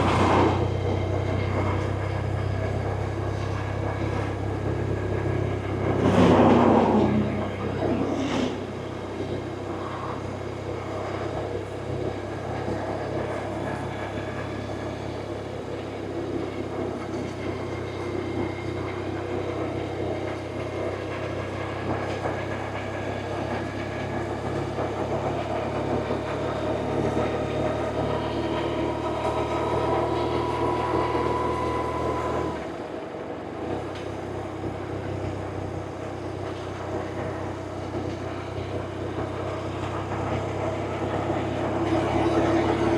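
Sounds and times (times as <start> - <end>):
motorcycle engine running: 0.0 - 32.7
faint whine: 0.0 - 42.9.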